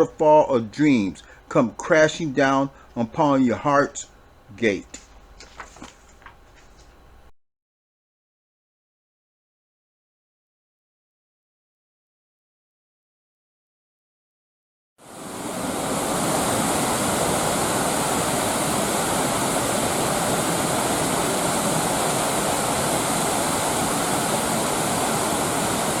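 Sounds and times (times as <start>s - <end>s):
waterfall rushing: 15.1s - 26.0s.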